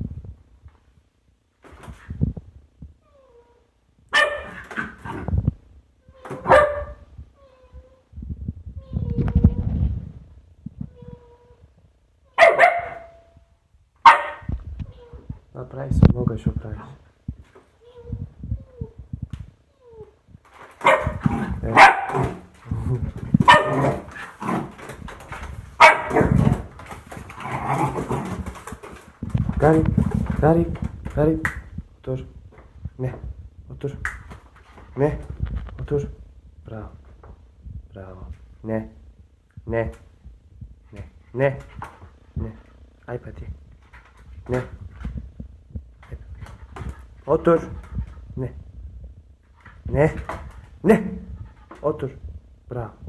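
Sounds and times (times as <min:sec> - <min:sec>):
dog barking: 0:04.1 - 0:05.3, 0:06.3 - 0:07.0, 0:12.4 - 0:13.3, 0:14.0 - 0:14.5, 0:20.8 - 0:22.5, 0:23.4 - 0:24.9, 0:25.8 - 0:26.7
scuffling: 0:20.5 - 0:31.7.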